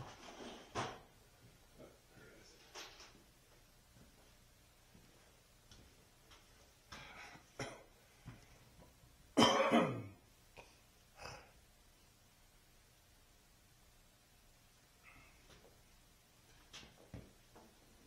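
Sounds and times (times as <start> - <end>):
faint knocks and rustles: 0.0 - 9.0, 15.4 - 18.0
man clearing his throat: 9.4 - 10.2.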